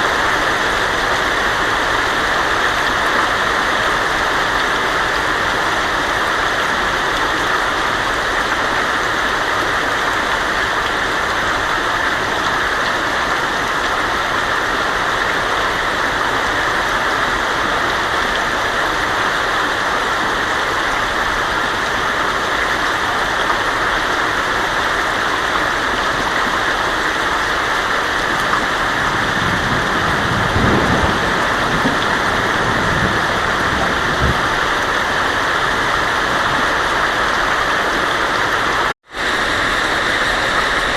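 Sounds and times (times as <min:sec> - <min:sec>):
heavy rain on a tin roof: 0:00.0 - 0:40.9
thunder rumbling: 0:28.6 - 0:36.7.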